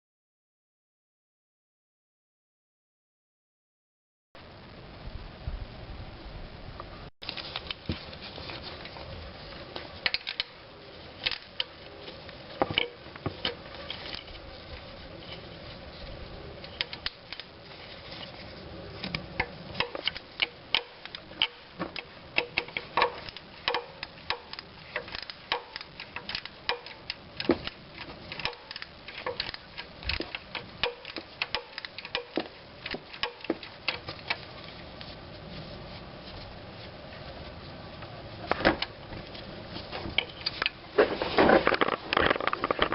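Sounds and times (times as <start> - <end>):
low steady background noise: 4.4 - 42.9
hand tools clicking and knocking: 12.5 - 14.3, 19.1 - 34.4.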